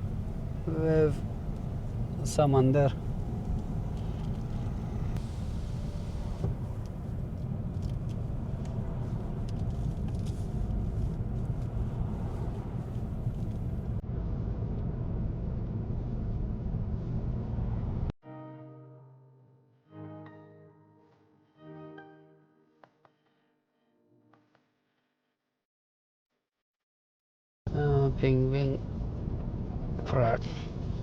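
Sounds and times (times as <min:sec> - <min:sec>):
car tyre and engine rumble: 0:00.0 - 0:18.1, 0:28.0 - 0:31.0.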